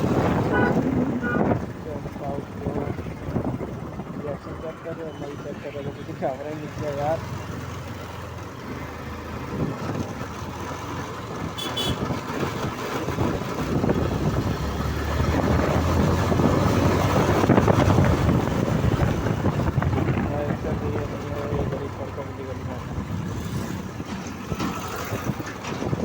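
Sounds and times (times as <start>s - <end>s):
wind rushing over microphone: 0.0s - 4.8s, 9.4s - 10.3s, 11.2s - 22.0s, 22.7s - 26.0s
motorcycle engine and road noise: 0.0s - 26.0s.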